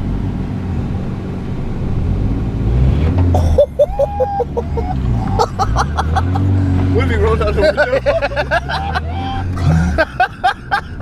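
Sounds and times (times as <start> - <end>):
car engine revving: 0.9 - 11.0
people yelping: 3.6 - 10.6.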